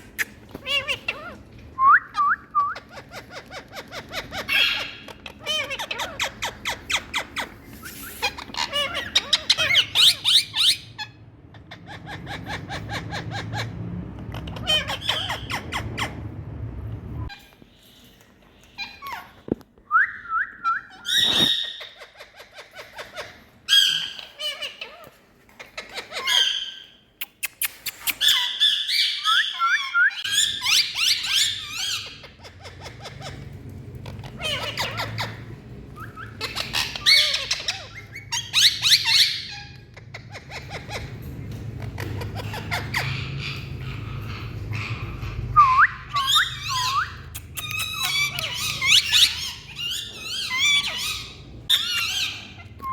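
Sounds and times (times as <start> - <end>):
parrot squawking: 0.0 - 16.4, 20.7 - 52.9.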